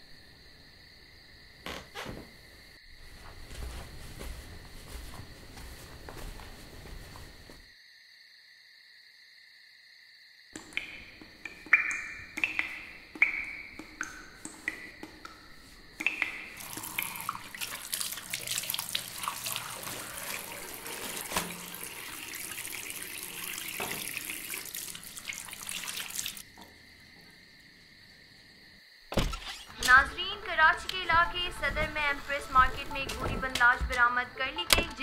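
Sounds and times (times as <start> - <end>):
water dripping into basin: 10.6 - 20.8, 21.5 - 27.3.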